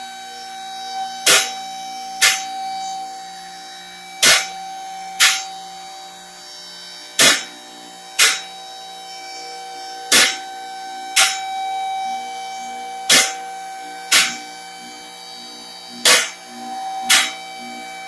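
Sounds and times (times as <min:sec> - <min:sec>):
hydraulic pump motor humming: 0:00.0 - 0:18.0.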